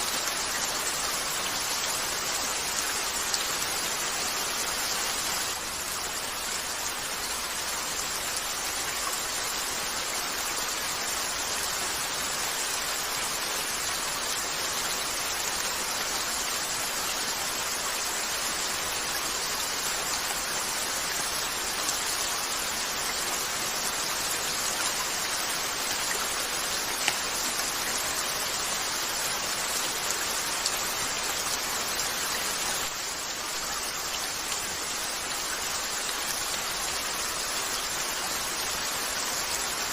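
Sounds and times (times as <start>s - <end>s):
steady rain falling: 0.0s - 39.9s
faint sharp clicks: 27.0s - 27.8s.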